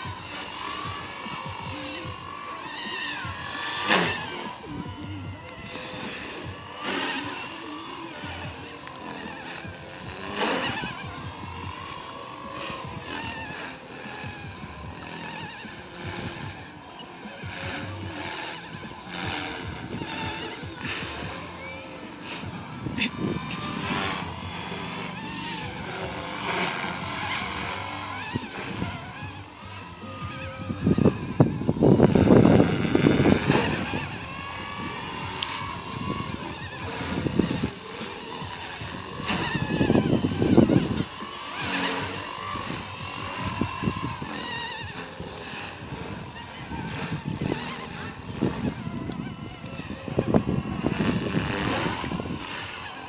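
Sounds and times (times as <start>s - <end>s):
rc helicopter rotor whine: 0.0s - 53.0s
wind rumble on microphone: 17.4s - 53.0s.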